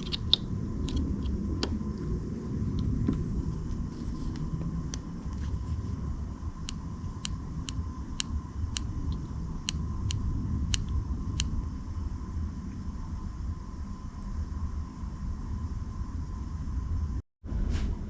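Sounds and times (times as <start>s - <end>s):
faint hum: 0.0s - 18.0s
low rumble: 0.0s - 18.0s
sharp light clicks: 6.6s - 11.6s.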